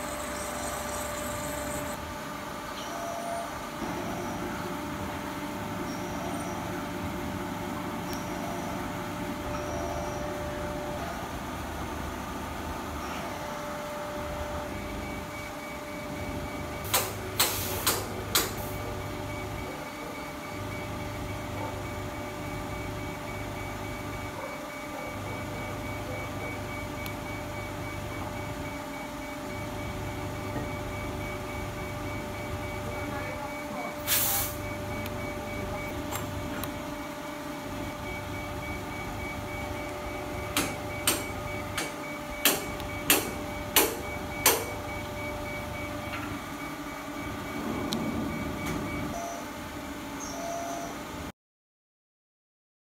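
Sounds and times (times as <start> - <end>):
milling machine steady hum: 0.0 - 51.3
sharp machine clicks: 16.8 - 18.6, 40.5 - 44.8.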